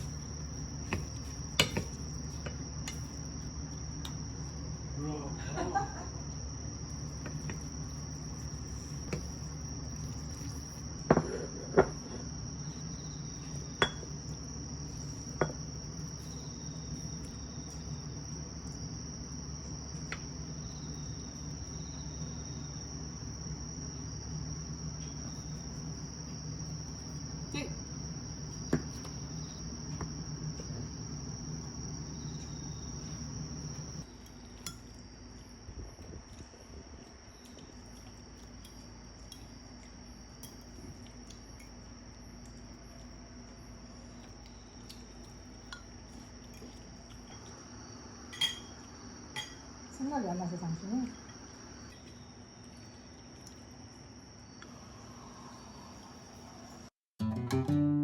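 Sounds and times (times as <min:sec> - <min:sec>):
crickets and insects chirping: 0:00.0 - 0:57.0
low steady hum: 0:00.0 - 0:58.0
cutlery clinking on dishes: 0:48.4 - 0:48.8.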